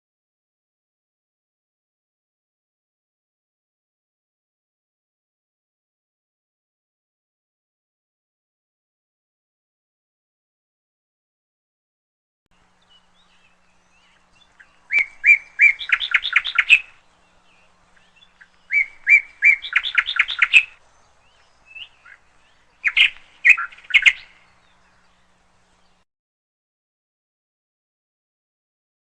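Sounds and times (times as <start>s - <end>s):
bird chirps: 12.7s - 26.0s
canary singing trills: 12.7s - 26.0s.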